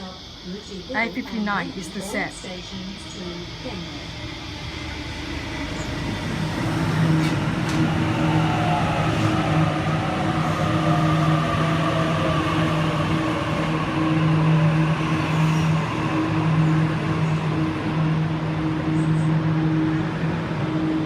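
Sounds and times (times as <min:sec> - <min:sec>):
electric train motor whine: 0:00.0 - 0:21.0.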